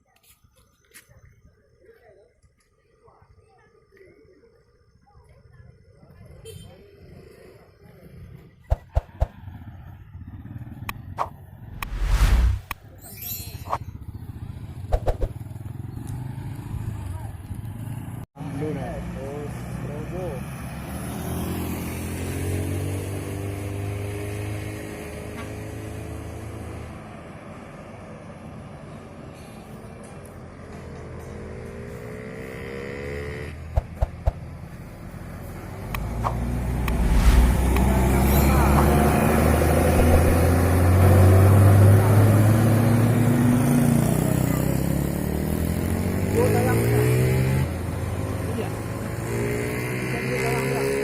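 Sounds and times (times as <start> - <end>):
low engine hum: 33.6 - 43.2.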